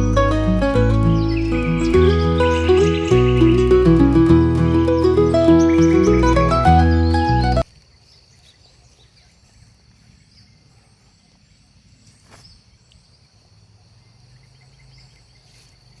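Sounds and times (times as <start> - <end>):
high bird-like chirps: 0.0 - 7.6.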